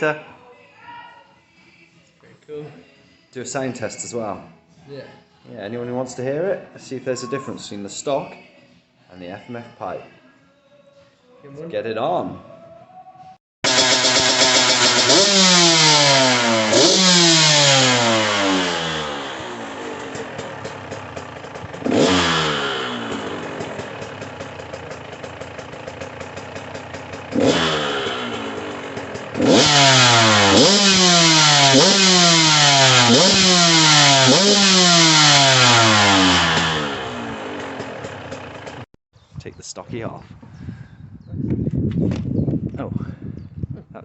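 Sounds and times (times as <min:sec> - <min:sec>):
two-stroke engine revving: 0:13.6 - 0:38.9.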